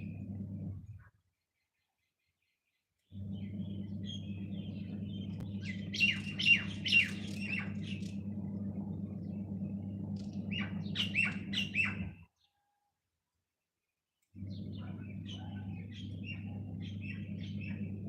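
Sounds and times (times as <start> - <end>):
steady low hum: 0.0 - 1.1, 3.1 - 12.2, 14.4 - 18.0
bird chirping: 0.8 - 8.4, 9.2 - 12.8, 14.4 - 18.0.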